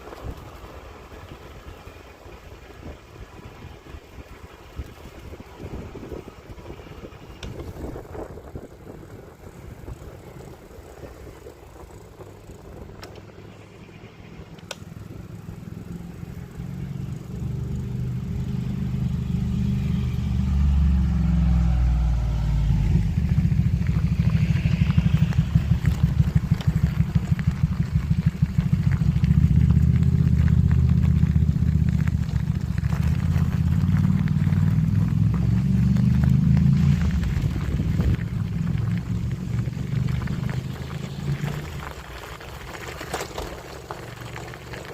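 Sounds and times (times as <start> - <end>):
wind buffeting microphone: 0.0 - 13.4, 20.4 - 42.7
bicycle rolling rumble: 0.0 - 44.9.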